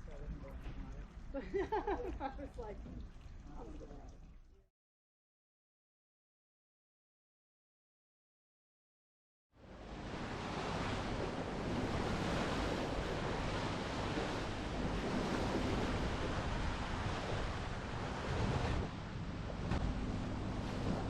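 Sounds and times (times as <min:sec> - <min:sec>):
waves washing: 0:09.6 - 0:21.0
wind buffeting microphone: 0:10.0 - 0:21.0.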